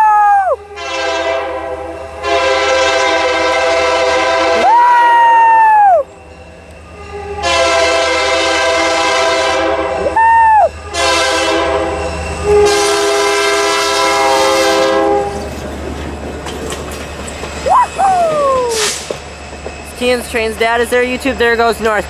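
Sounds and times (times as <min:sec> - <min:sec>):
moving train rumble: 0:00.1 - 0:22.0
locomotive air horn blasts: 0:00.6 - 0:04.9, 0:06.9 - 0:15.5.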